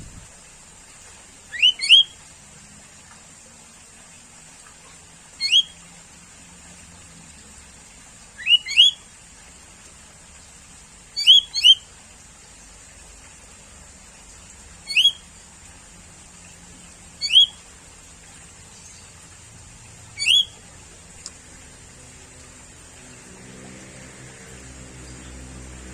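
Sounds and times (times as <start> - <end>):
bird whistled calls: 1.5 - 2.2, 5.4 - 5.8, 8.4 - 9.0, 11.2 - 11.8, 14.9 - 15.2, 17.2 - 17.6, 20.2 - 20.6.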